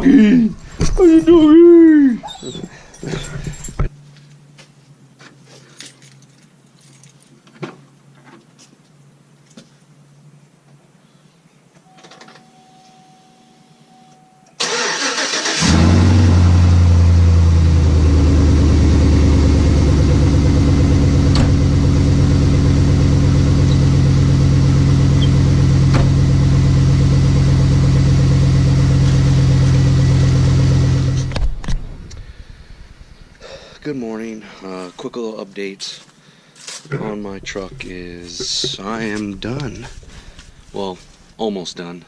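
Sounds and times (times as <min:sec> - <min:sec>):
starter cranking engine: 0:14.6 - 0:16.2
truck engine idling: 0:14.7 - 0:31.3, 0:37.2 - 0:41.3.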